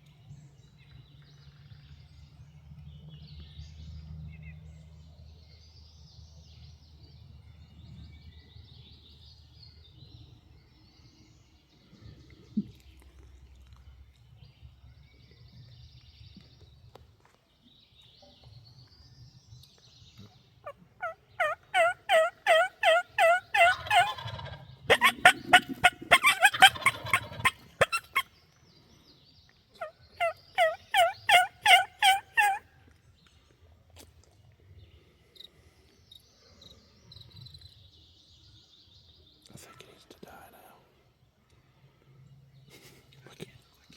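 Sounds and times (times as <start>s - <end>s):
turkey gobbling: 20.6s - 28.3s, 29.8s - 32.6s
turkey yelping: 20.6s - 28.3s, 29.8s - 32.6s.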